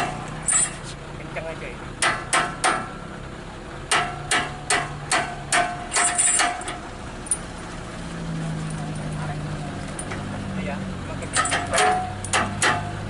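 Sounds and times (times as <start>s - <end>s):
truck engine idling: 0.0s - 13.0s
hammer striking metal: 2.0s - 3.0s, 3.9s - 6.8s, 11.3s - 13.0s.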